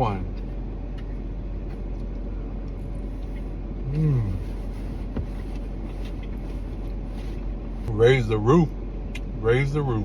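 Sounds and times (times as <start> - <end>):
low background hum: 0.0 - 10.0
man humming: 3.8 - 4.5.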